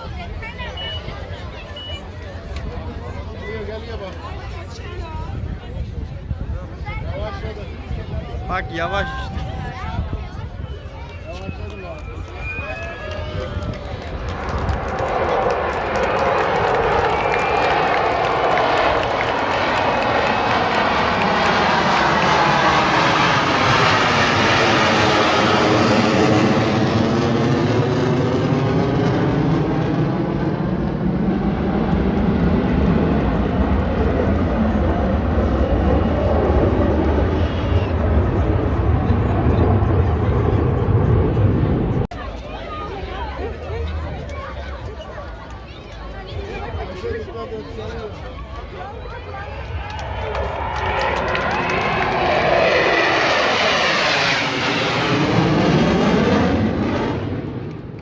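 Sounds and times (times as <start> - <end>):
fighter jet engine rumble: 11.5 - 42.1, 46.1 - 58.0.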